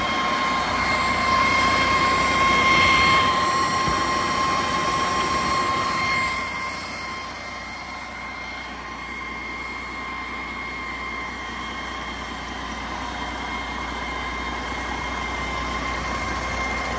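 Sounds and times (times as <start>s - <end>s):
diesel engine running: 0.0s - 16.9s
high whine: 0.0s - 16.9s.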